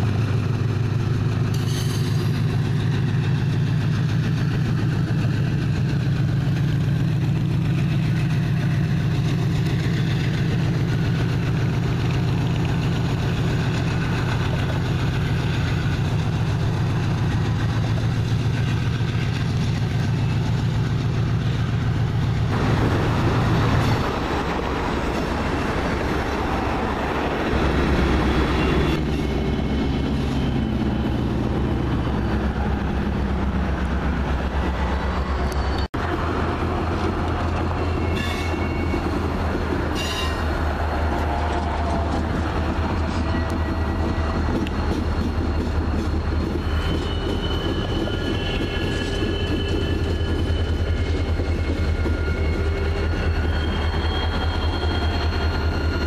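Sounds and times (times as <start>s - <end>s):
diesel locomotive engine hum: 0.0s - 56.0s
freight cars rolling over bridge: 0.0s - 56.0s
high wheel squeal: 34.4s - 36.1s, 36.9s - 56.0s.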